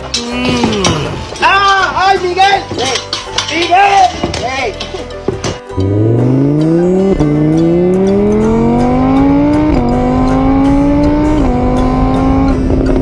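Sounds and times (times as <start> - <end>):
car engine accelerating through gears: 5.8 - 13.0.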